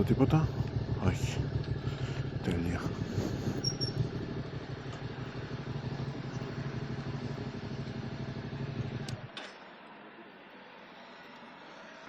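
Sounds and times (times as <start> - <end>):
motorcycle engine idling: 0.0 - 9.3.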